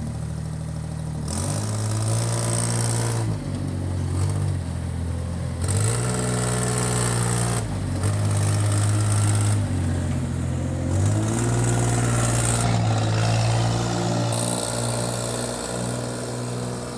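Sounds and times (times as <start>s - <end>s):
backhoe engine revving: 4.0s - 16.9s.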